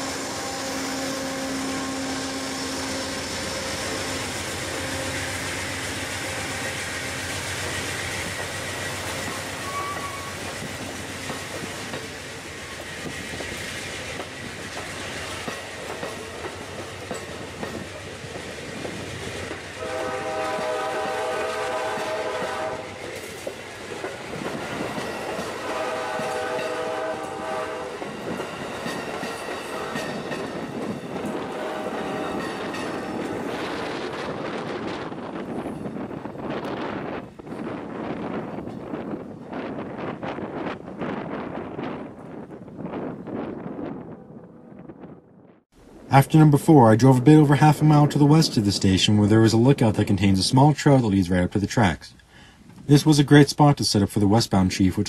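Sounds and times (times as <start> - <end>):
train horn blasts: 0.0 - 6.8, 9.6 - 10.5, 19.8 - 23.3, 25.3 - 28.3, 29.6 - 30.3, 31.3 - 33.2
train rumbling on track: 0.0 - 51.6.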